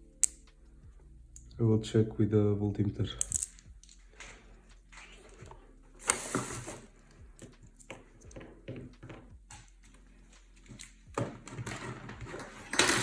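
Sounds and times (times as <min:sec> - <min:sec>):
tools clattering on workbench: 0:11.2 - 0:13.0.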